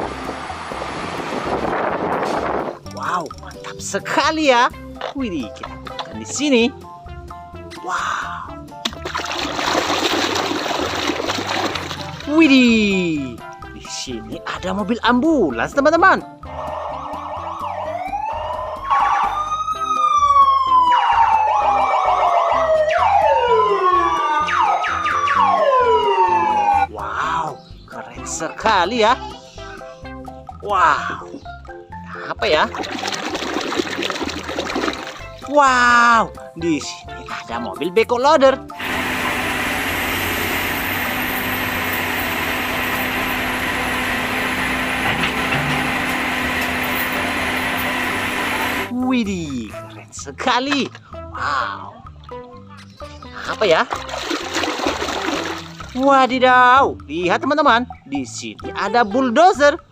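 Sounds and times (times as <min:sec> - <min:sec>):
wailing siren: 0:16.4 - 0:27.3
small motor humming: 0:38.8 - 0:48.9.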